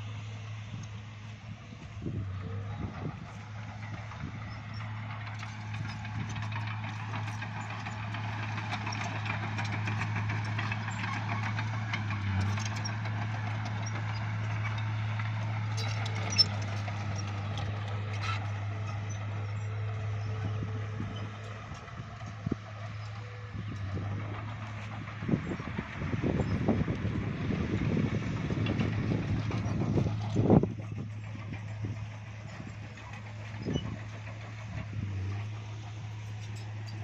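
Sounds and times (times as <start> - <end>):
bulldozer diesel engine running: 0.0 - 37.0.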